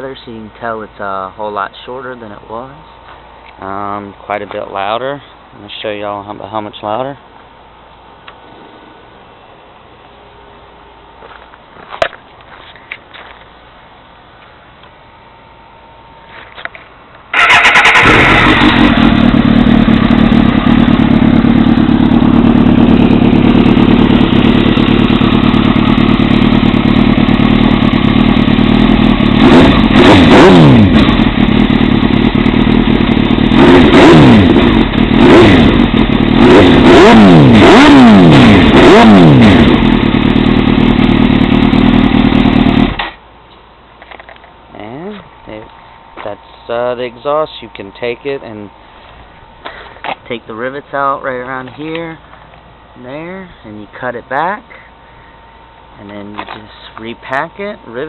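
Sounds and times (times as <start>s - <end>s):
motorcycle engine revving: 17.3s - 43.2s
motorcycle engine idling loudly: 17.4s - 43.2s.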